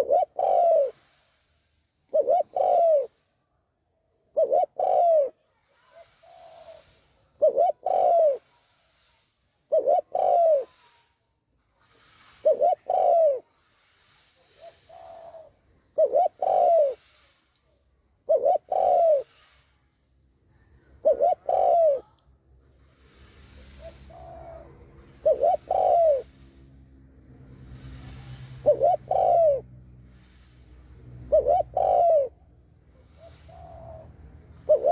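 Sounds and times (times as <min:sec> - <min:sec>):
dove cooing: 0:00.0 - 0:01.2, 0:02.1 - 0:03.2, 0:04.3 - 0:08.7, 0:09.7 - 0:11.1, 0:12.4 - 0:13.5, 0:14.5 - 0:17.1, 0:18.3 - 0:19.4, 0:20.8 - 0:22.2, 0:23.6 - 0:26.4, 0:28.6 - 0:29.7, 0:31.2 - 0:34.9.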